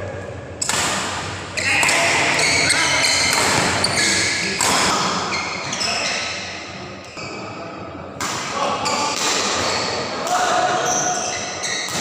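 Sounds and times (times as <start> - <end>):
rackets striking shuttlecock: 0.6 - 5.2.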